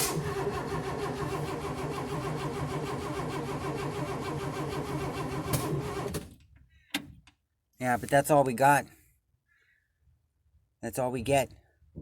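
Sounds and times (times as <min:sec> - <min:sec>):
engine cranking without catching: 0:00.0 - 0:06.4.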